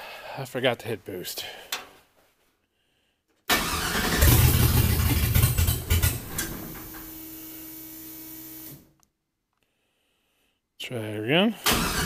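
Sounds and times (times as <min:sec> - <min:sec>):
car engine cranking: 0:03.5 - 0:07.1, 0:11.7 - 0:12.0
engine running: 0:03.6 - 0:07.1.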